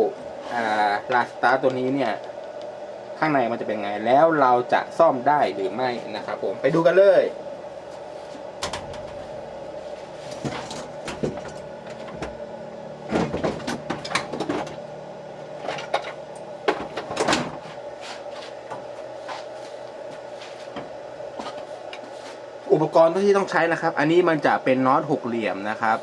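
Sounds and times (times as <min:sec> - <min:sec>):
faint steady hum: 0:00.0 - 0:26.0
tools knocking and clattering: 0:10.4 - 0:12.4.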